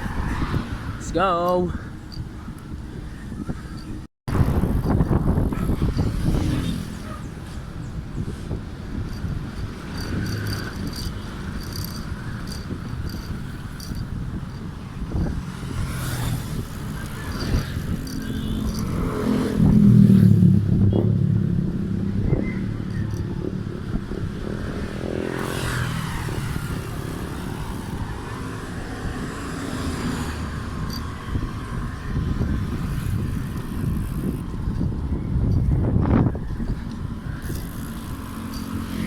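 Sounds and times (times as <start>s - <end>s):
traffic: 0.0s - 39.0s
wind noise: 0.0s - 39.0s
motorcycle passing loudly: 4.5s - 7.3s, 15.2s - 34.9s, 37.3s - 39.0s.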